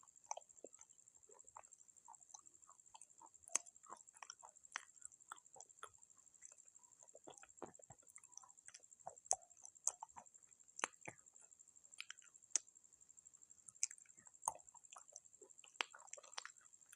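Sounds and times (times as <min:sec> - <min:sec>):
clay pot being chewed: 0:00.0 - 0:16.9.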